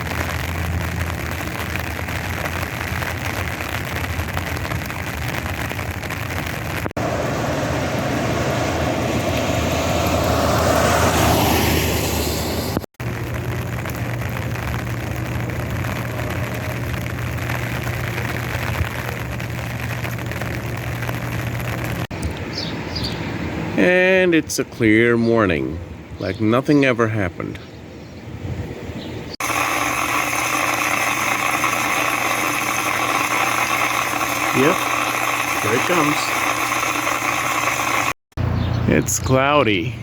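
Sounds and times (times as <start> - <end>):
vehicle engine humming: 6.8 - 22.4, 29.4 - 40.0.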